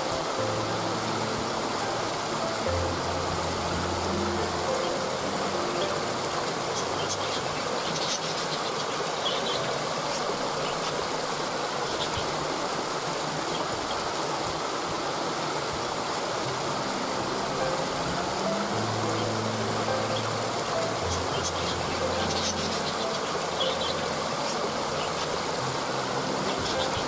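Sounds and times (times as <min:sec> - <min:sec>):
waterfall rushing: 0:00.0 - 0:27.0
high bird chirps: 0:20.9 - 0:25.3.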